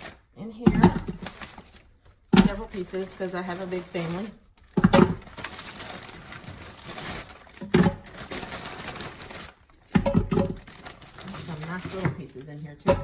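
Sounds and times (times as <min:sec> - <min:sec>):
plastic bag rustling: 0:00.0 - 0:13.0
frozen chicken knocking into pot: 0:04.7 - 0:05.3, 0:09.9 - 0:10.7.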